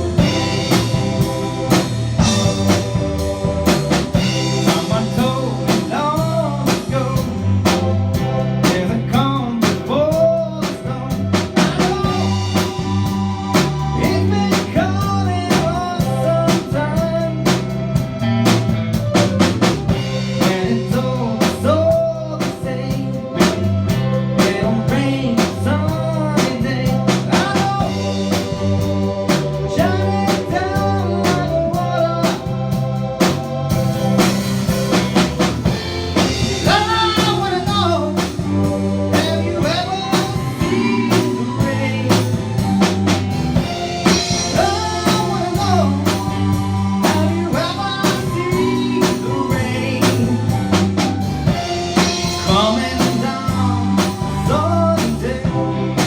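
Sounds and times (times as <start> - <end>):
lead guitar bending notes: 0.0 - 9.3, 26.0 - 56.0
rock band playing: 0.0 - 56.0.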